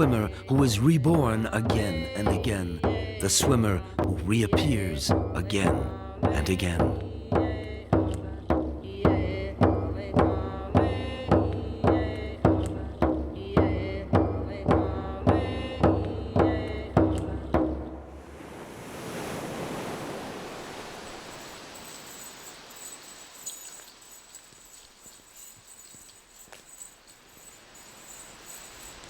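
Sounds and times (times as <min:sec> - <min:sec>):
rushing like surf: 0:00.0 - 0:07.0, 0:17.4 - 0:25.1, 0:27.1 - 0:29.0
voices chanting: 0:00.0 - 0:17.5
drum beaten steadily: 0:00.0 - 0:18.0.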